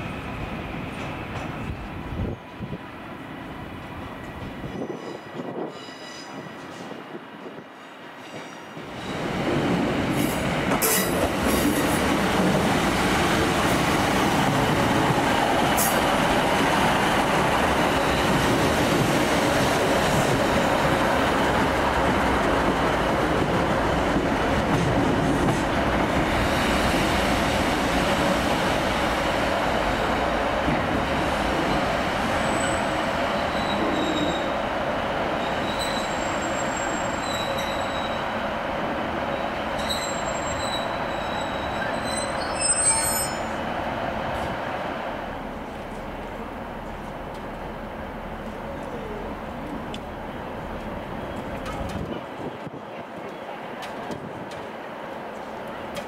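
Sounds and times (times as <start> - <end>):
train wheels rumbling on rails: 0.0 - 56.0
faint high wheel squeal: 4.7 - 6.5, 35.6 - 38.3, 39.3 - 43.6.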